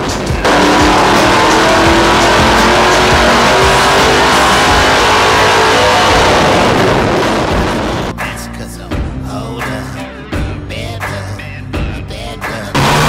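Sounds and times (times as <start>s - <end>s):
race car engine at full throttle: 0.0s - 8.2s, 12.7s - 13.0s.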